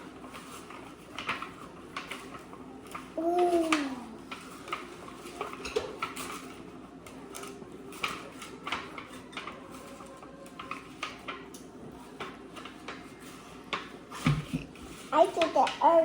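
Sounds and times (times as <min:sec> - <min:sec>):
clicks and taps on cake pans: 0:13.7 - 0:15.9.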